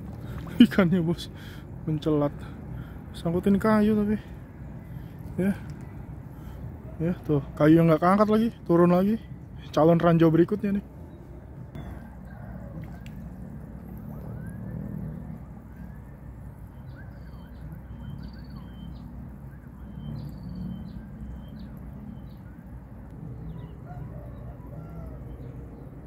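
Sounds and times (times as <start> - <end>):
small birds chirping: 16.6 - 26.0.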